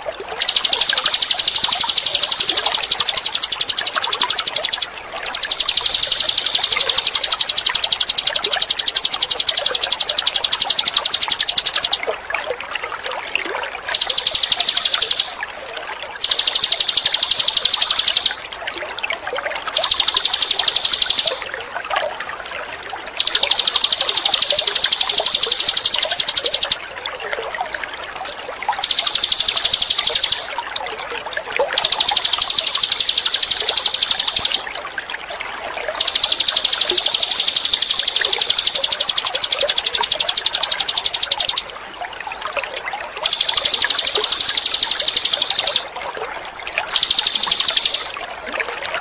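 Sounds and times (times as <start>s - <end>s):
trickling water: 0.0s - 49.0s
bird buzzing trills: 0.4s - 12.0s, 13.9s - 15.4s, 16.2s - 18.4s, 19.7s - 21.4s, 23.2s - 26.9s, 28.8s - 30.6s, 31.8s - 34.7s, 36.0s - 41.7s, 43.2s - 45.9s, 47.0s - 48.1s.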